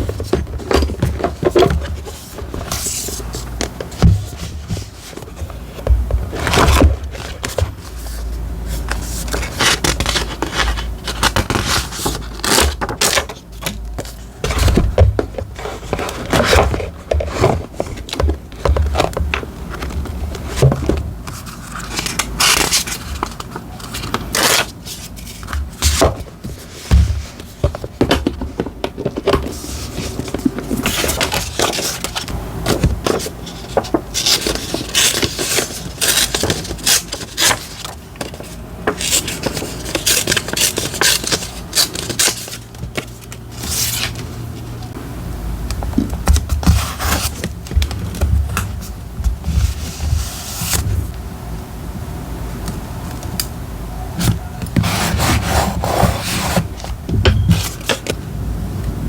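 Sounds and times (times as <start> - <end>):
paper rustling and crinkling: 0.0 - 45.0, 45.7 - 51.2, 54.2 - 58.2.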